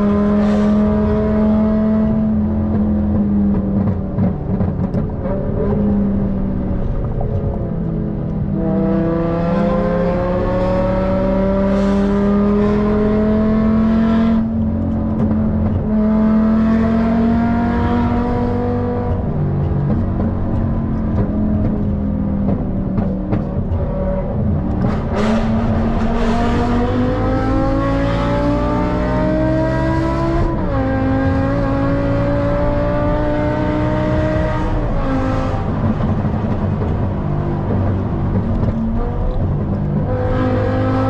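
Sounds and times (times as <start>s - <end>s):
car engine revving hard: 24.7s - 36.8s.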